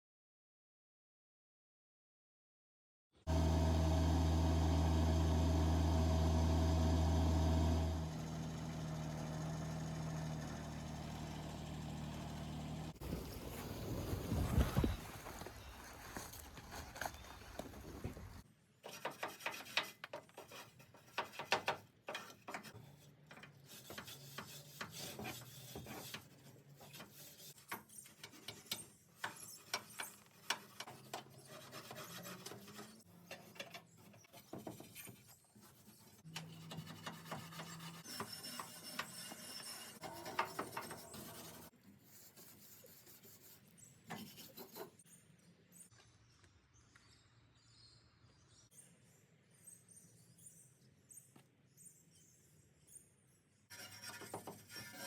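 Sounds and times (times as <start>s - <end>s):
hand scraping on metal: 15.9s - 45.0s.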